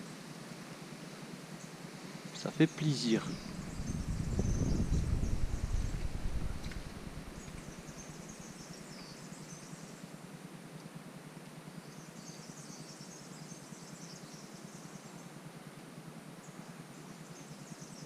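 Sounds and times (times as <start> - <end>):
steady quiet hiss: 0.0 - 18.0
small birds chirping: 2.3 - 9.8.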